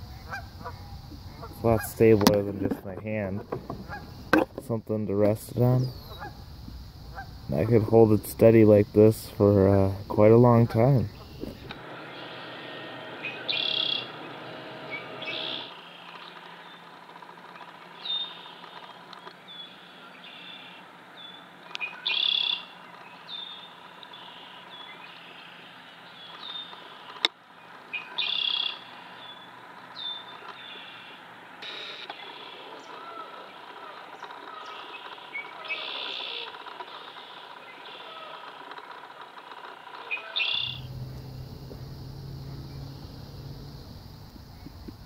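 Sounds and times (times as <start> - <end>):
small birds chirping: 0.0 - 12.6, 13.2 - 38.8, 39.7 - 45.0
louder fuller bird calls: 10.5 - 38.7, 39.7 - 45.0.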